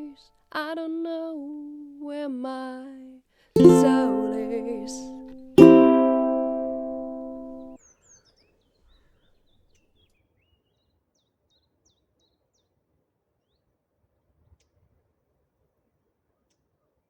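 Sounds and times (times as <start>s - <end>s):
ukulele strummed chord: 3.6s - 7.8s.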